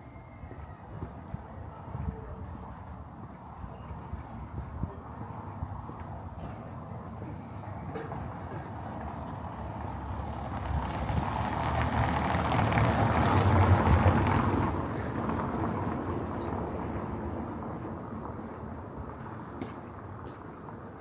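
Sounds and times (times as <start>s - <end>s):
vehicle driving past: 9.6s - 18.4s.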